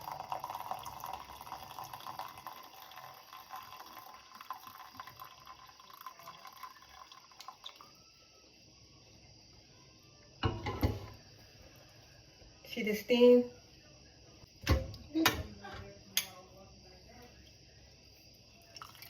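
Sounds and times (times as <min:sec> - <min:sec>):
syrup pouring into cup: 0:00.0 - 0:08.2, 0:18.7 - 0:19.0.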